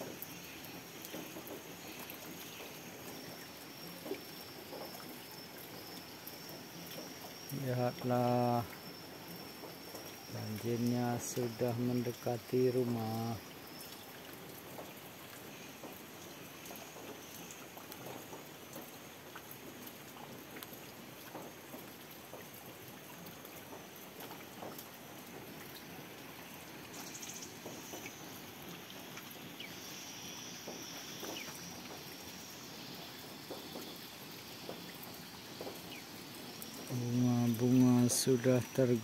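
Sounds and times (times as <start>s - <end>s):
faint raindrop ticks: 0.0s - 39.0s
rain on leaves and water: 0.0s - 39.0s.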